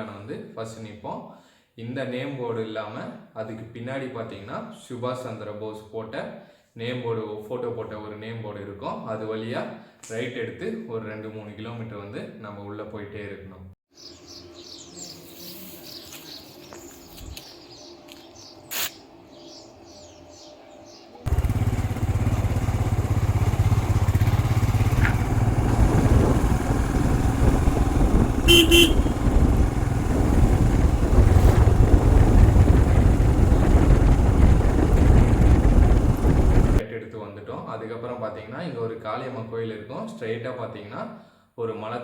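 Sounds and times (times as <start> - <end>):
birds chirping: 13.9 - 36.8
motorcycle engine rumble: 21.3 - 36.8
horn toot: 28.3 - 30.1.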